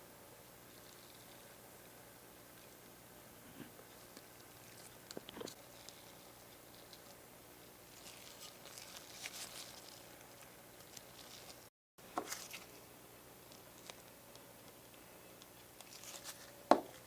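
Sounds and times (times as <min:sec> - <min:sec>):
handling noise on small model: 0:03.8 - 0:17.0.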